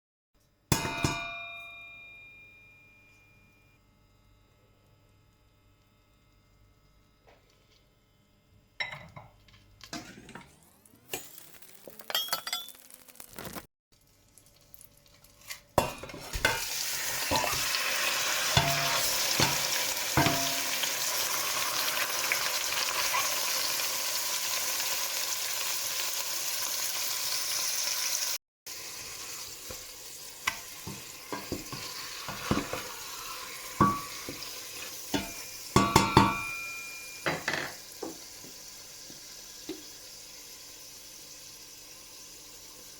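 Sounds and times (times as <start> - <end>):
food sizzling in pan: 10.5 - 42.9
utensil and cookware clatter: 15.5 - 21.1, 30.5 - 37.8.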